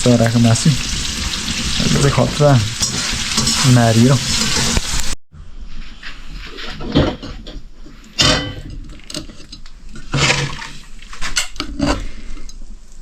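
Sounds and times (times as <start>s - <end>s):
pots and utensils clinking: 0.0s - 5.1s, 8.2s - 10.6s.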